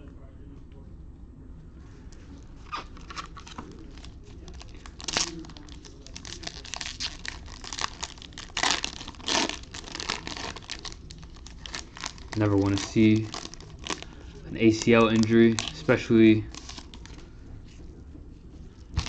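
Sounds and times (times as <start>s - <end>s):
card pack wrapper crinkling: 2.7s - 17.2s.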